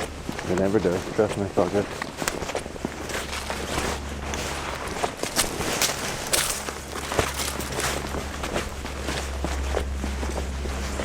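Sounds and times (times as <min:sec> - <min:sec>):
footsteps walking: 0:00.0 - 0:11.0
low hum: 0:01.8 - 0:11.0.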